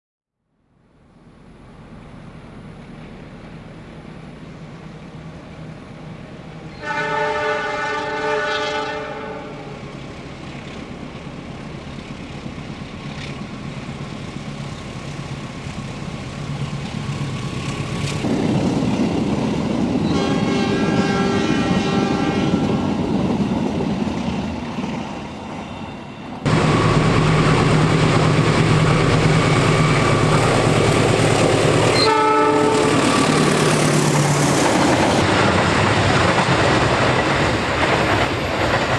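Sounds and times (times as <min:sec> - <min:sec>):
diesel locomotive engine drone: 0:00.6 - 0:38.9
train horn chord: 0:06.8 - 0:09.8, 0:20.1 - 0:22.9, 0:32.0 - 0:33.3.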